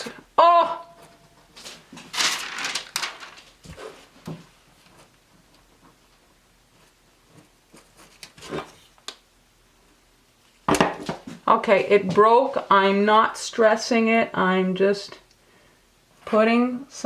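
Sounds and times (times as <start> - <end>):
cookie pieces rustling: 1.6 - 3.9.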